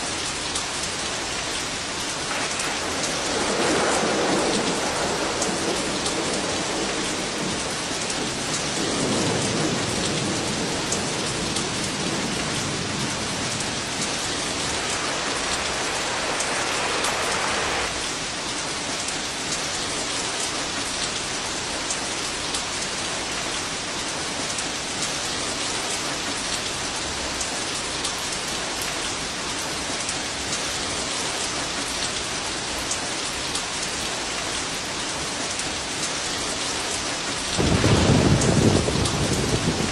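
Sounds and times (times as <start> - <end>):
heavy rain hissing: 0.0 - 39.9
distant thunder rumble: 2.1 - 18.1, 37.2 - 39.9.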